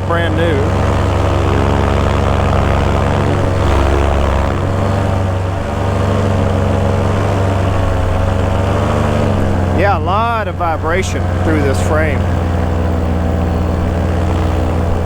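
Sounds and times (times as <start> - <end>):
paramotor engine and propeller running: 0.0 - 15.0.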